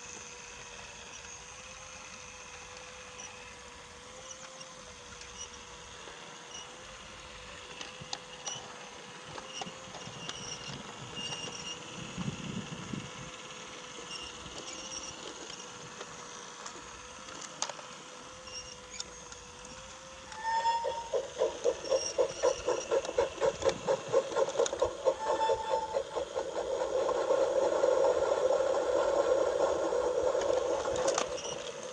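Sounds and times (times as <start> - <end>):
toy train motor whining: 0.0 - 31.9
wheels clicking over track joints: 7.7 - 12.4, 14.0 - 31.9.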